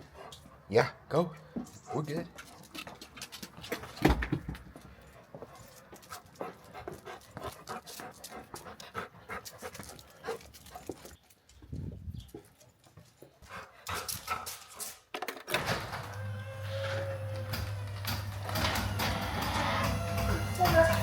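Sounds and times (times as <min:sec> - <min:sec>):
dog panting: 0:00.0 - 0:00.7, 0:01.4 - 0:04.0, 0:04.8 - 0:11.2, 0:12.8 - 0:15.0.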